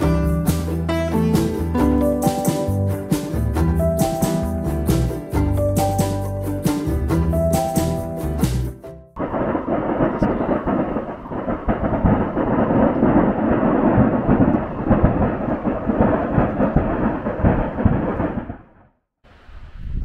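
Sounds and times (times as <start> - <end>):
fireworks bangs: 9.2 - 18.8.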